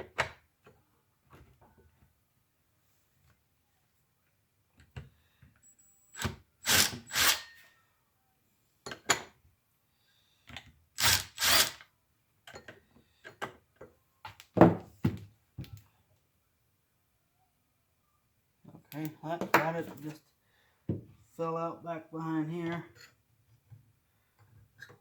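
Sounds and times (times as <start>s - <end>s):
ratchet wrench ratcheting: 11.0s - 11.8s.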